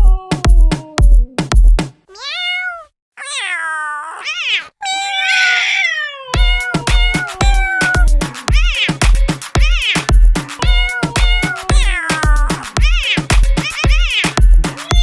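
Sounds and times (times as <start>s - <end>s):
cat meowing: 2.1s - 9.0s, 9.6s - 15.0s
electronic music with thudding beat: 6.4s - 15.0s.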